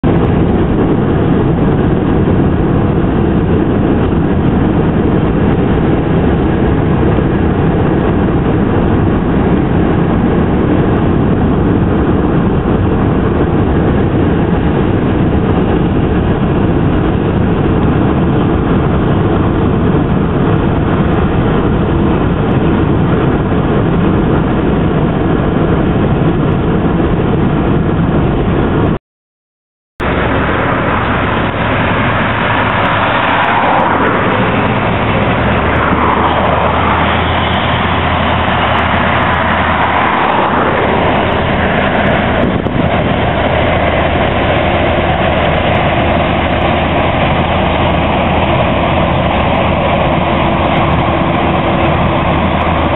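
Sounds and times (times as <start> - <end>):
freight train rumbling past: 30.0 - 52.9.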